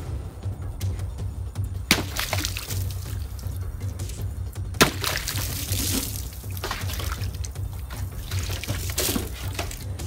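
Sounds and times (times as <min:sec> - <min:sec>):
background music: 0:00.0 - 0:10.0
blade hitting jug: 0:01.9 - 0:03.3, 0:04.8 - 0:09.8
water splashing on table: 0:04.8 - 0:09.8.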